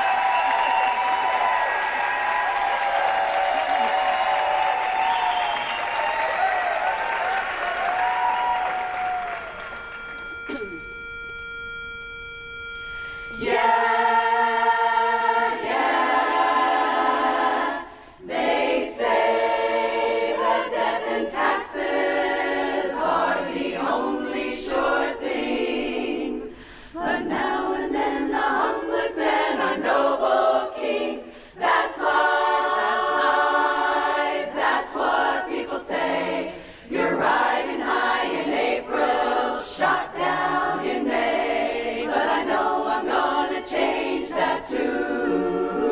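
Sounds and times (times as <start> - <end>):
pitch pipe note: 8.6 - 14.7
women's chorus singing a cappella: 13.3 - 45.9.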